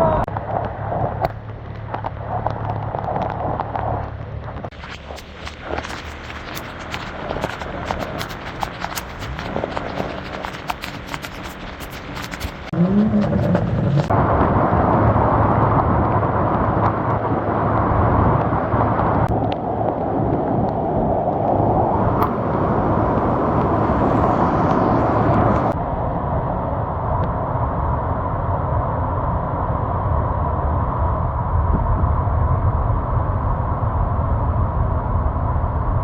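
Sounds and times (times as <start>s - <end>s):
floodwater rushing: 4.7s - 20.2s, 21.3s - 25.8s.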